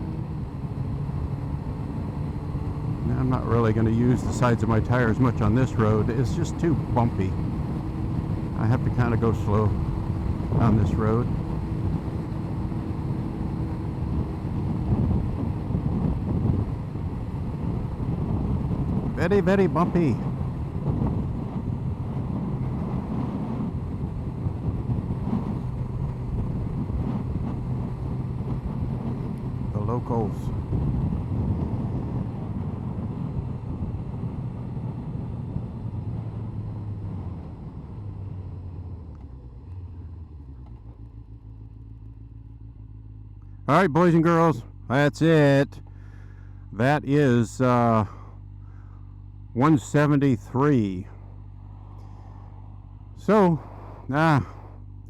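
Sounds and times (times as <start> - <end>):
wind rushing over microphone: 0.0 - 39.1
low hum: 0.0 - 55.0
motorcycle engine cruising: 0.0 - 55.0.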